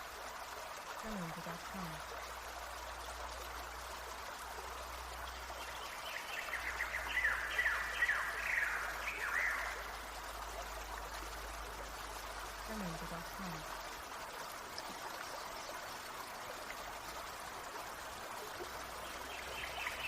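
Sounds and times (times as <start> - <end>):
stream flowing: 0.0 - 20.0.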